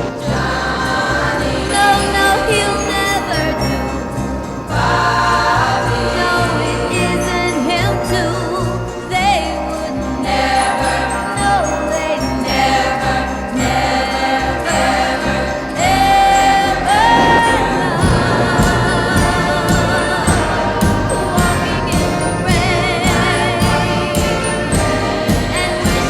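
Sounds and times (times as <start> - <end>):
backing singers: 0.0 - 26.0
female lead vocal: 0.0 - 26.0
bass and drums: 15.8 - 26.0.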